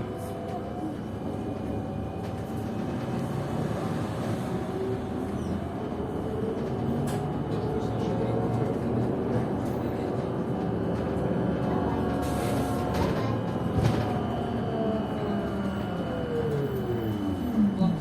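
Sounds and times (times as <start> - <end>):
trolleybus running and road noise: 0.0 - 18.0.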